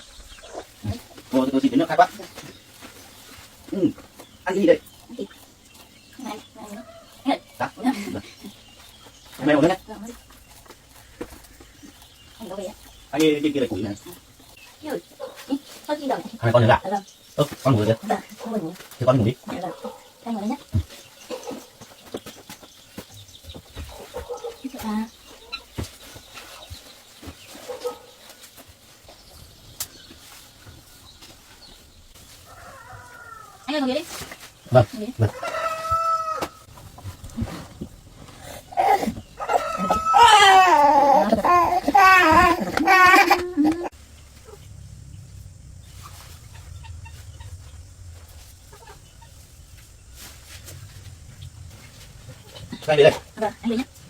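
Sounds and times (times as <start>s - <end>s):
faint animal calls: 32.3s - 37.7s, 38.3s - 54.0s
child crying: 39.8s - 43.9s
low steady rumble: 43.9s - 54.0s.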